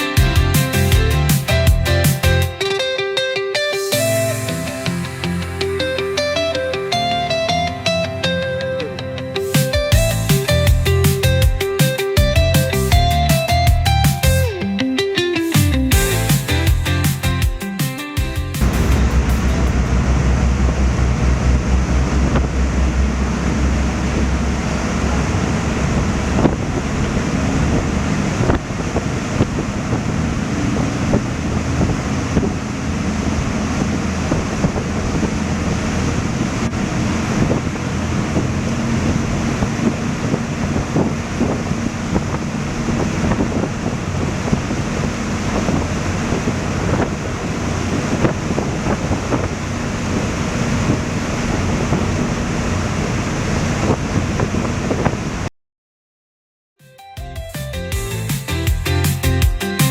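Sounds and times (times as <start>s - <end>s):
steady low drone: 0.0s - 2.5s, 4.0s - 11.6s, 18.6s - 48.0s
sea waves washing: 0.0s - 13.6s, 18.6s - 55.5s
wind buffeting microphone: 18.6s - 55.5s.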